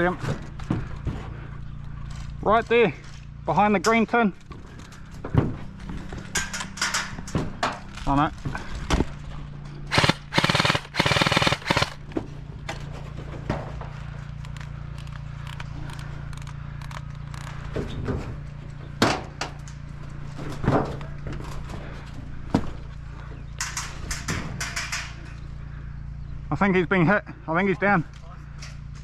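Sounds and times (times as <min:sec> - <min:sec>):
steady low hum: 0:00.0 - 0:29.0
airsoft guns firing: 0:09.9 - 0:12.0.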